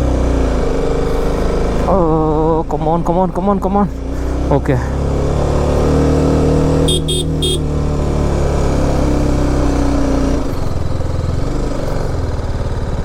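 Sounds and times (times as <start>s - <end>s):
horn beeps: 6.8s - 7.7s.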